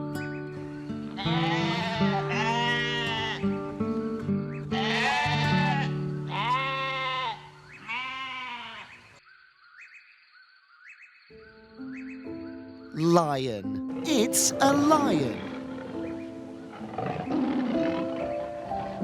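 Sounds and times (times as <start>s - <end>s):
goat bleating: 1.2s - 3.4s, 4.8s - 9.0s
background music: 11.4s - 19.0s.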